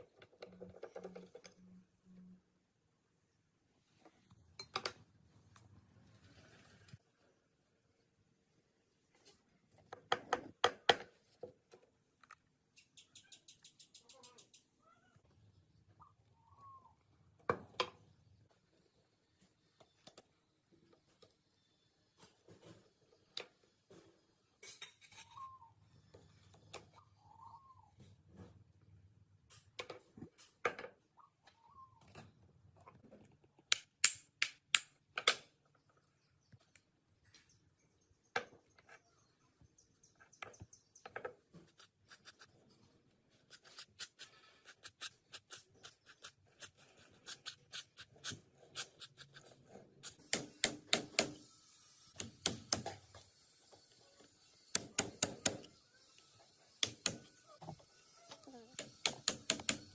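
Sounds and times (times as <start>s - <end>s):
tool clicks and knocks: 58.8s - 59.9s.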